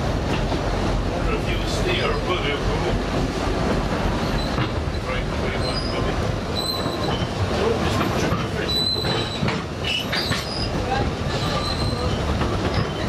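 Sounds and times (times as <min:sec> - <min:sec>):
train wheels rumbling on track: 0:00.0 - 0:13.0
high-pitched wheel squeals: 0:05.6 - 0:07.3, 0:08.6 - 0:10.8, 0:11.4 - 0:13.0.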